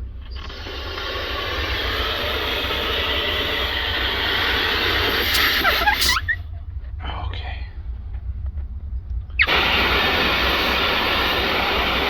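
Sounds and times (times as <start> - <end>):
water spraying hiss: 0.4 - 6.3, 9.4 - 12.0
short squeaks: 5.3 - 6.8.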